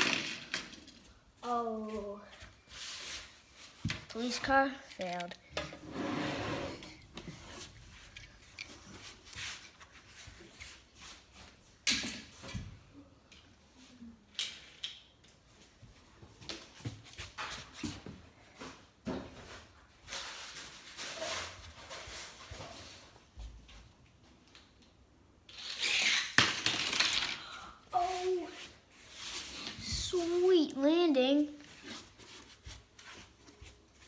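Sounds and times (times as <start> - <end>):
toy cars clicking and knocking: 0.0 - 1.0, 4.9 - 5.7, 25.5 - 27.5
toy cars rattling and rolling: 0.0 - 1.0, 25.5 - 28.2.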